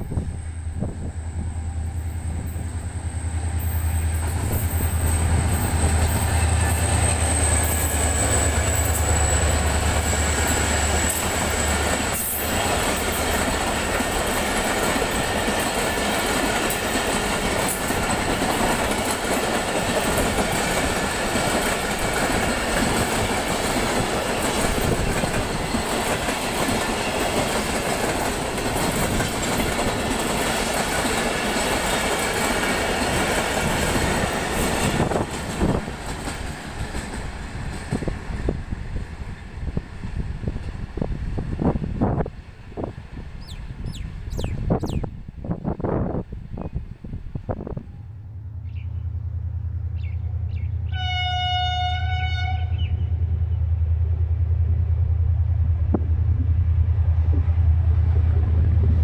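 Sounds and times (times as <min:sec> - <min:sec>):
diesel locomotive engine drone: 0:00.0 - 0:59.0
train wheels clickety-clack: 0:03.5 - 0:45.1.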